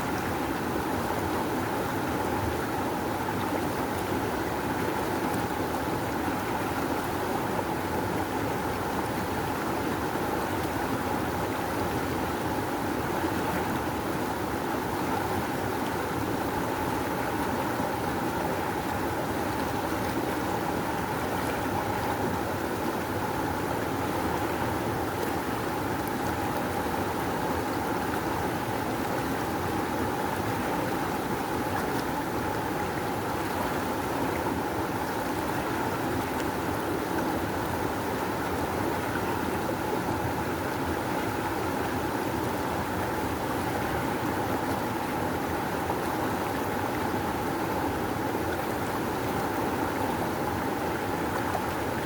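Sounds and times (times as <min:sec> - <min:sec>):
rushing river water: 0:00.0 - 0:52.0.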